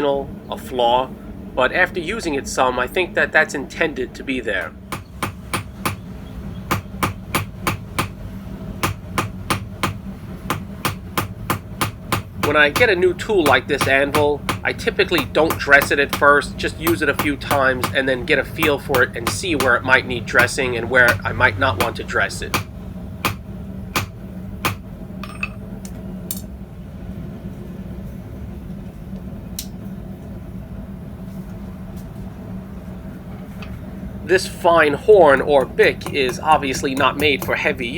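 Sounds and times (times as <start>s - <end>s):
steady low hum: 0.0s - 37.9s
hammer striking steel on anvil: 4.9s - 6.0s, 6.7s - 8.2s, 8.8s - 25.6s, 34.5s - 37.9s
metallic clinks of tools: 25.2s - 25.6s.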